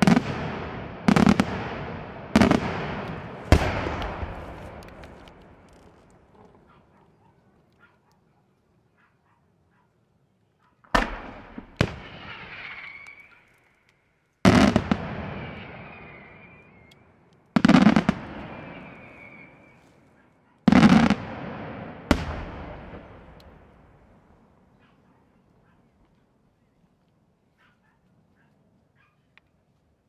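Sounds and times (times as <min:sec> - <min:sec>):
fireworks bangs: 0:00.0 - 0:06.2, 0:10.9 - 0:13.5, 0:14.4 - 0:16.9, 0:17.6 - 0:19.8, 0:20.7 - 0:24.2.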